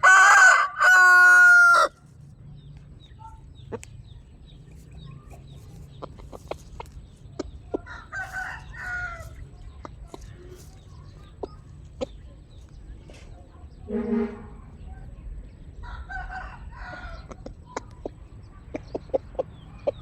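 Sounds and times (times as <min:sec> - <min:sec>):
chickens calling softly: 0:00.0 - 0:20.0
steady low hum: 0:06.2 - 0:16.1.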